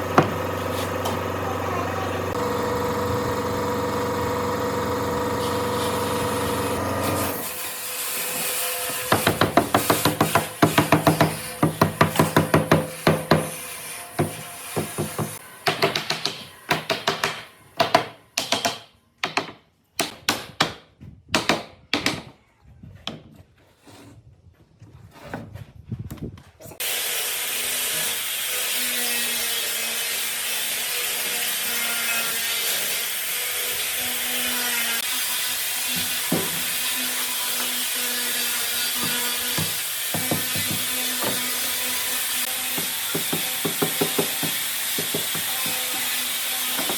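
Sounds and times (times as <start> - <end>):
power tool running on wood: 0.0 - 7.6
sharp knocks on wood: 39.0 - 41.4.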